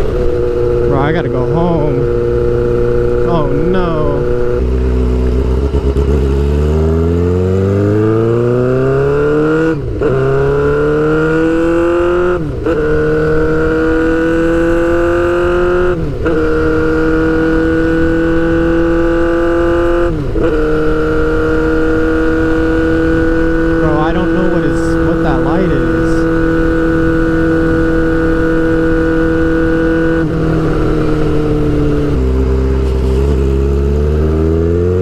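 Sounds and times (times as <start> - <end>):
motorcycle engine accelerating: 0.0 - 35.0
loud exhaust hum: 13.7 - 34.6.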